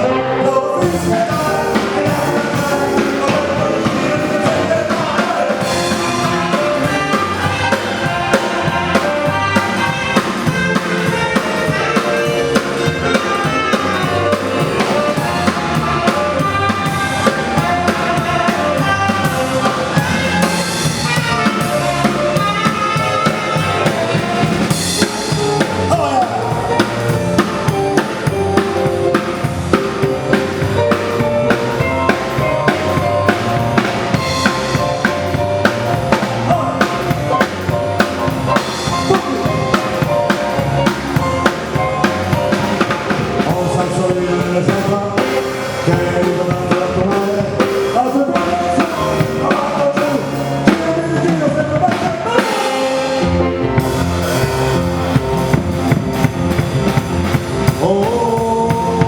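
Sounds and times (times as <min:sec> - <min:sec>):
bass: 0:00.0 - 0:59.0
drum kit beat: 0:00.8 - 0:59.0
melody line: 0:03.2 - 0:43.9.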